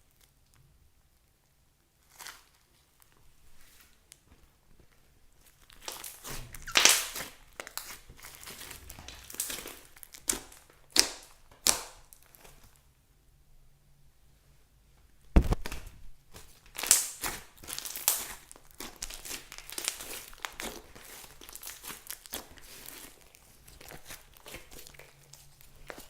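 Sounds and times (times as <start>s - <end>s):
slime crackling and crinkling: 1.9s - 12.9s, 15.4s - 26.0s.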